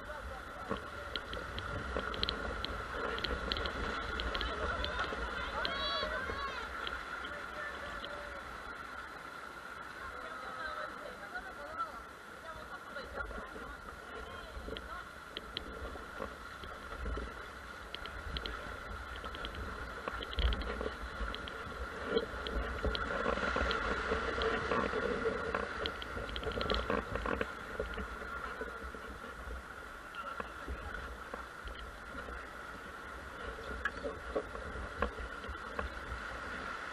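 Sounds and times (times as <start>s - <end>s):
faint clicks: 0.6s - 8.2s, 14.6s - 29.1s.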